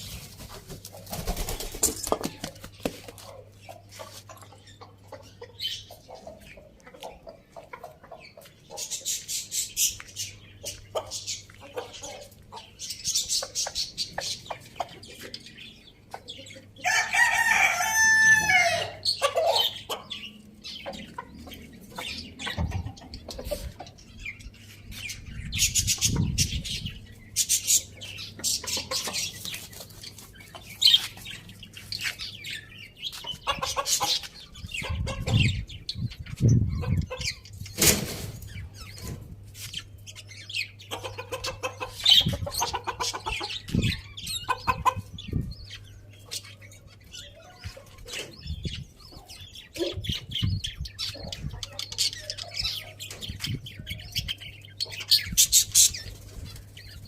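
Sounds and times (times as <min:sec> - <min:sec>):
chickens clucking and chirping: 0:00.0 - 0:57.0.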